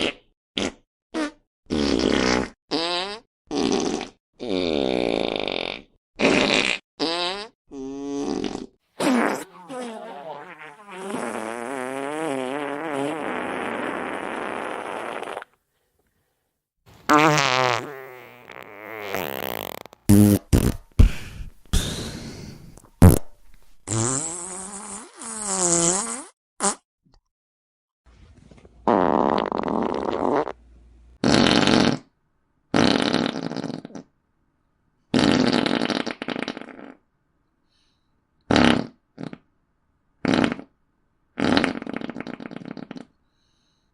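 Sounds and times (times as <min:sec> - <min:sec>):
fart sound effects: 0:00.0 - 0:15.5, 0:17.1 - 0:26.8, 0:28.8 - 0:30.6, 0:31.2 - 0:32.1, 0:32.7 - 0:34.0, 0:35.1 - 0:37.0, 0:38.5 - 0:39.4, 0:40.2 - 0:40.7, 0:41.4 - 0:43.1.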